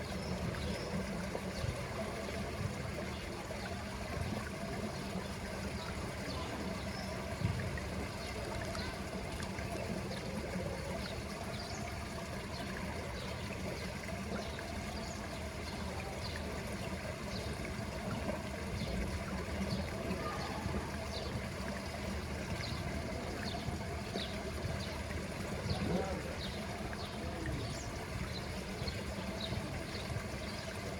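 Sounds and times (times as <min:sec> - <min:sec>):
water trickling and splashing: 0:00.0 - 0:30.9.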